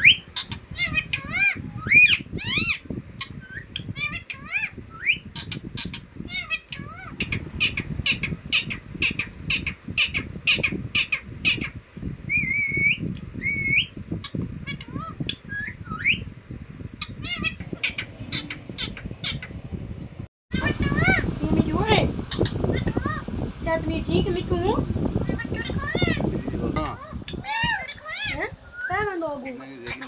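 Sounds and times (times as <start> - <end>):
parrot squawking and chirping: 0.0 - 16.3, 17.0 - 19.6, 20.5 - 23.3, 25.2 - 30.0
parrot whistles: 12.3 - 13.9, 27.0 - 29.1.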